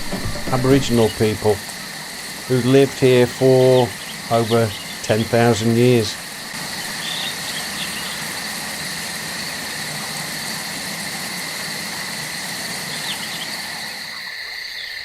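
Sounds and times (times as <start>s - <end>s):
insects droning: 0.0s - 15.0s
faint chirps: 2.4s - 8.4s.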